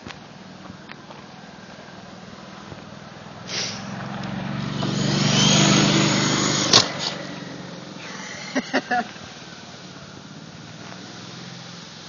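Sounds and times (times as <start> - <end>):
toy helicopter rotor whirring: 4.9 - 8.5.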